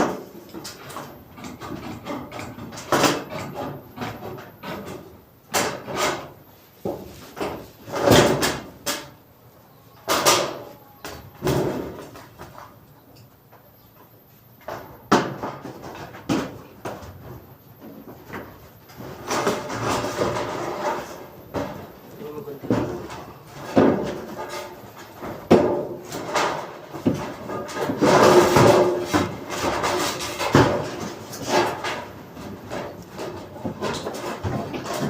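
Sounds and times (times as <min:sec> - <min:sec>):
scraping and rustling: 0:14.0 - 0:35.0
knocks and bangs: 0:22.6 - 0:35.0.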